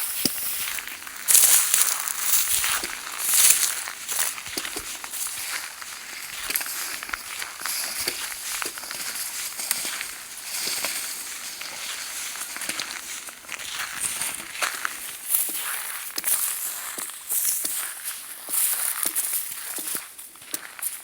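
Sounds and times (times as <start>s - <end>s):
footsteps crunching: 0.0s - 21.0s
rustling: 0.5s - 4.8s.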